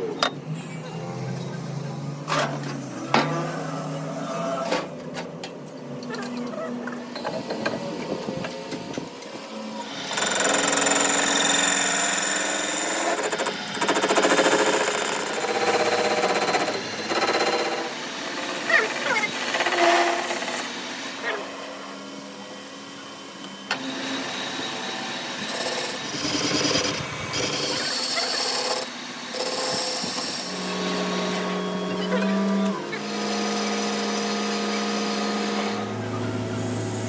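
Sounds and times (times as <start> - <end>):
power tool rattling on metal: 10.0 - 20.8, 25.3 - 31.4.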